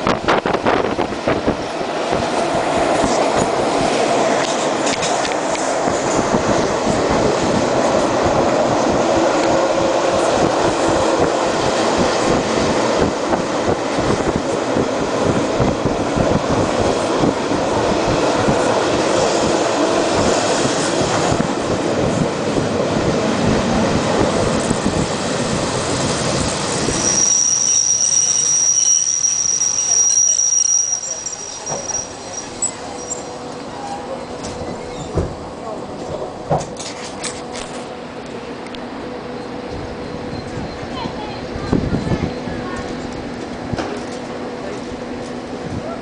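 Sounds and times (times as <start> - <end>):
train rumbling on rails: 0.0 - 46.0
high-pitched wheel squeal: 26.8 - 34.1.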